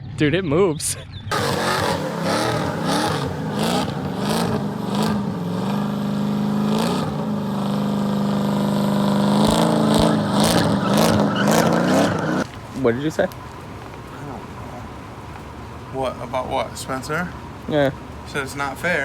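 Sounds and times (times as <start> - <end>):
car engine revving hard: 1.3 - 12.5.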